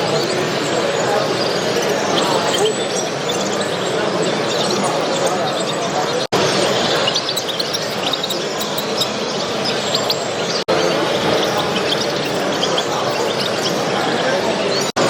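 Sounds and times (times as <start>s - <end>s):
hubbub of exhibition hall: 0.0s - 15.0s
small cage birds chirping: 0.0s - 15.0s.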